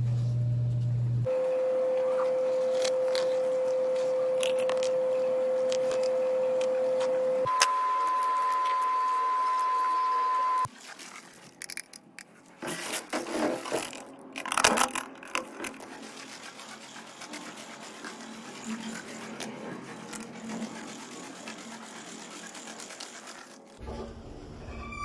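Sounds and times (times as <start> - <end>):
high electronic beep tone: 7.5 - 10.7
faint scraping and clicking: 10.9 - 21.6.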